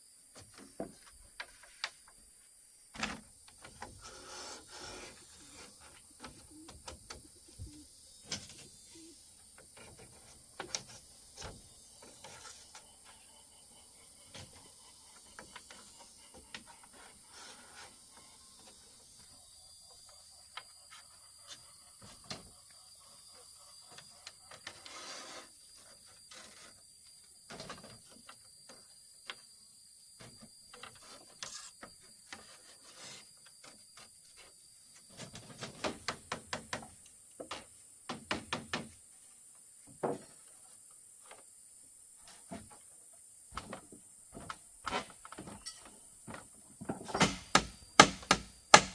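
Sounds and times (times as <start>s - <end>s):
bamboo and wood knocking: 35.1s - 39.0s, 43.5s - 48.9s.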